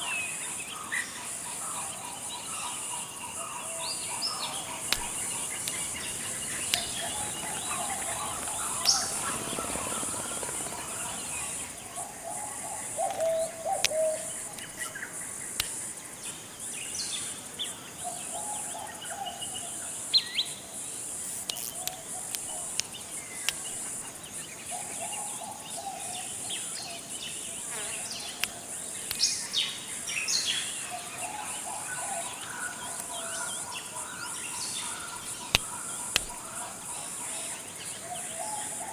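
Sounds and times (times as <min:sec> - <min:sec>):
insect drone: 0:00.0 - 0:38.9
lower bird calls: 0:02.4 - 0:15.6, 0:21.4 - 0:38.9.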